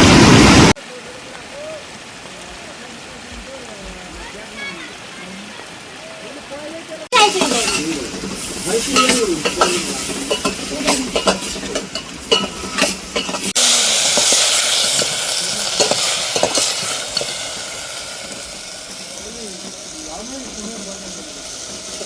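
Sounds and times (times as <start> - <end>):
food sizzling in a pan: 7.0 - 22.0.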